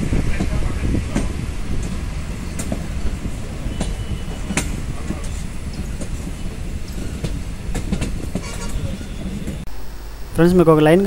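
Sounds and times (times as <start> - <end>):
train wheels rumbling on rail: 0.0 - 9.7
metallic clacks over rail joints: 0.4 - 9.6.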